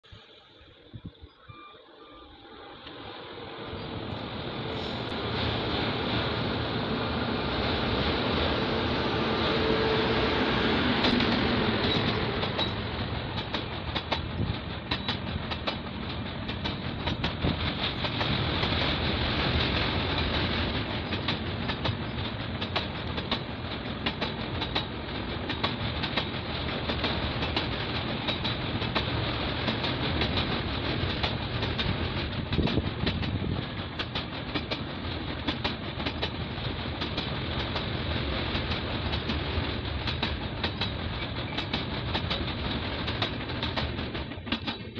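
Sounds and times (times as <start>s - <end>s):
train wheels rumbling on rails: 2.4s - 44.9s
wheels clicking over rail joints: 10.9s - 44.9s.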